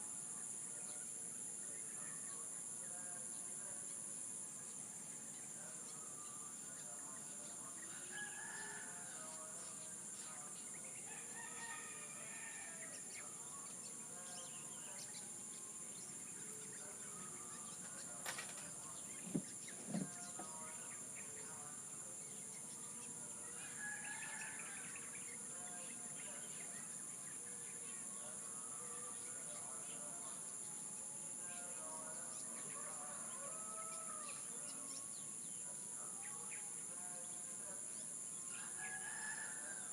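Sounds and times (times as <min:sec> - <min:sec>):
high drone of insects: 0:00.0 - 0:39.9
roosters crowing: 0:07.9 - 0:09.4, 0:11.0 - 0:13.0, 0:23.6 - 0:25.1, 0:32.7 - 0:34.5, 0:38.6 - 0:39.9.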